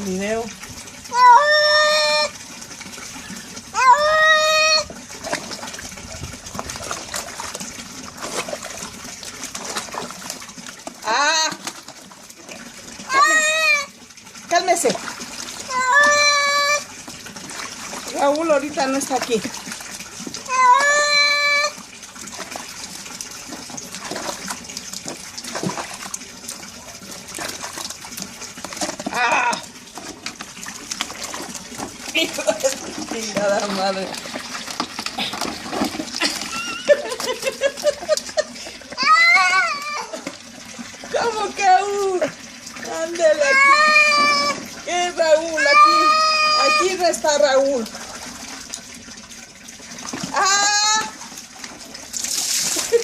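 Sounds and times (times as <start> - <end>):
water running and splashing: 0.0 - 53.0
cat yowling: 3.8 - 4.8, 20.5 - 21.8, 45.6 - 46.8.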